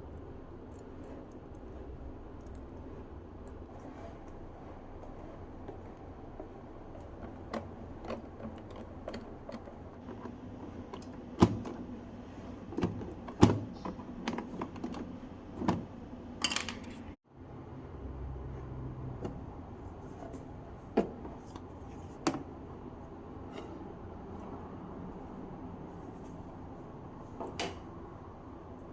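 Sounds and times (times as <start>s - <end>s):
plastic parts clicking and knocking: 5.6s - 12.0s, 12.6s - 17.0s.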